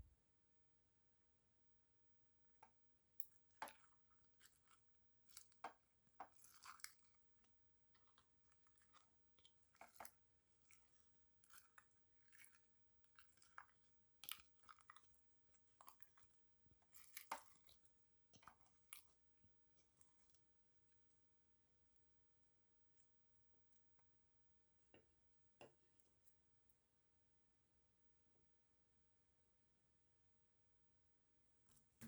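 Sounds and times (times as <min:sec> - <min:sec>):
faint irregular clicks and crackles: 0:02.6 - 0:19.2.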